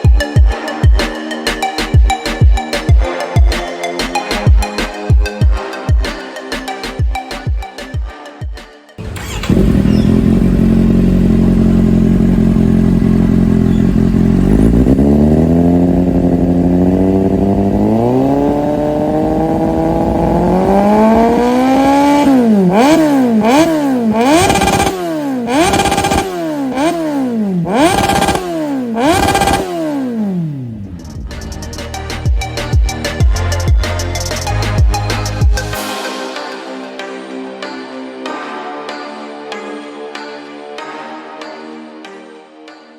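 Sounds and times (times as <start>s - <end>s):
motorcycle engine revving: 9.0s - 31.4s.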